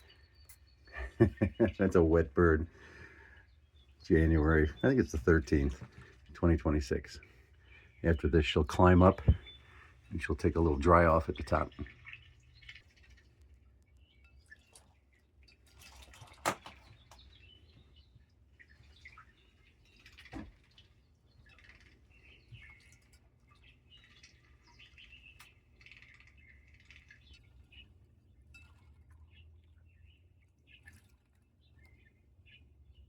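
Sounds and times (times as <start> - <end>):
soft bird chirps: 0.0 - 33.0
bird splashing in water: 14.4 - 27.8.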